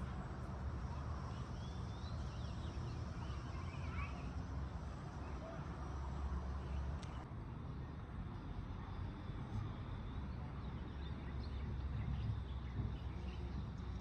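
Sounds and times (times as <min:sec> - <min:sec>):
faint bird chirps: 0:01.3 - 0:04.4.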